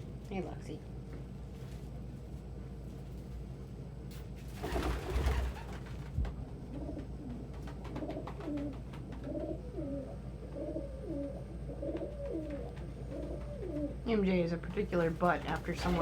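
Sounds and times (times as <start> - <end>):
wing flurry: 4.5 - 6.3
pigeon cooing: 6.5 - 14.1.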